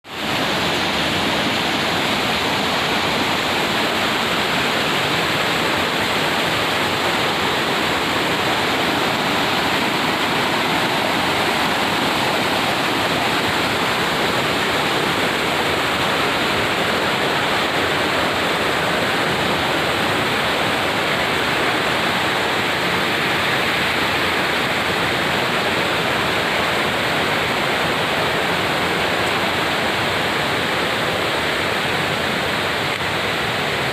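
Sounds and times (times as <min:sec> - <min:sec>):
water rushing: 0:00.0 - 0:33.9.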